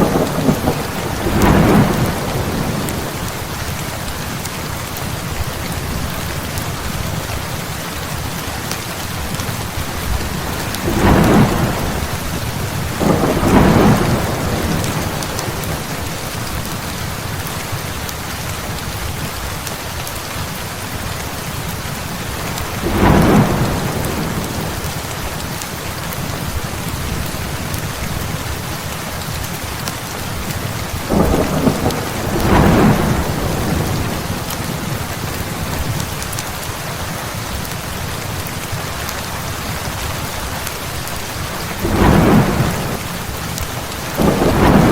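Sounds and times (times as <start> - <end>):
thunder rumbling: 0.0 - 3.6, 9.2 - 16.7, 22.8 - 25.1, 30.6 - 36.2, 41.5 - 43.3, 44.1 - 44.9
heavy rain falling: 0.0 - 44.9.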